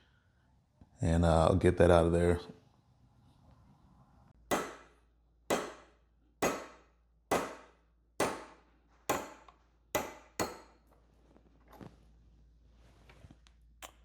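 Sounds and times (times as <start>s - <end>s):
hammer striking metal punch: 4.5s - 10.8s.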